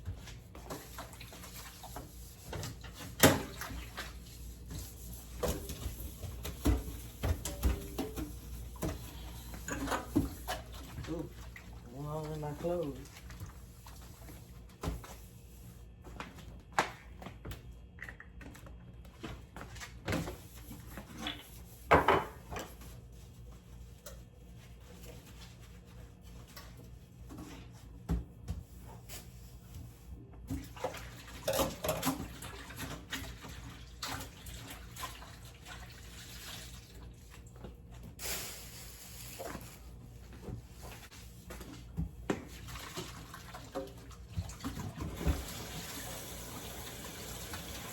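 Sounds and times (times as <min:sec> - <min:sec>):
sink tap running: 0:45.2 - 0:47.9.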